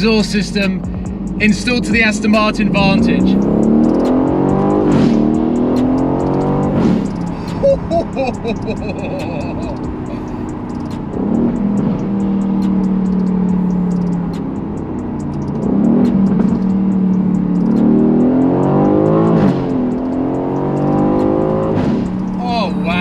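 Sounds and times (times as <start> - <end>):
car engine under load: 0.0 - 23.0.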